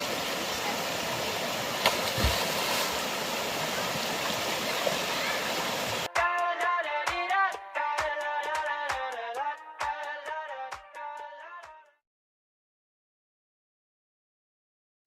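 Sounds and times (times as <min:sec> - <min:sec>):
waterfall and stream rushing: 0:00.0 - 0:06.1
music: 0:06.1 - 0:12.0.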